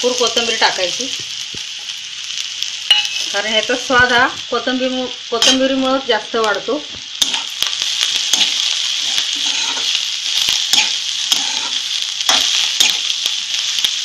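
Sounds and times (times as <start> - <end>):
dumplings sizzling in oil: 0.0 - 14.0
spatula scraping and knocking pan: 7.2 - 13.2.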